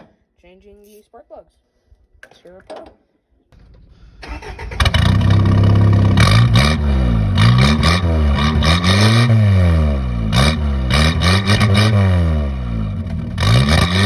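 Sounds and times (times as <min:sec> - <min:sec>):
pickup engine revving: 0:03.6 - 0:14.0.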